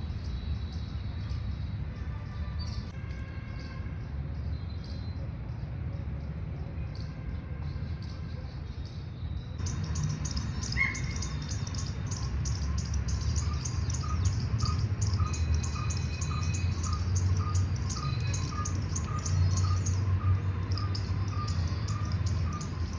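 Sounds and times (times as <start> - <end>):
insects chirping: 9.6 - 22.9.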